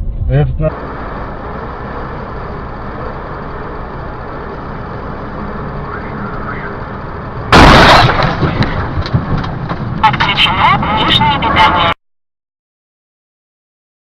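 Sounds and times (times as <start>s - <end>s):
car engine and road noise: 0.0s - 12.0s
vehicle collision crash: 7.5s - 10.6s.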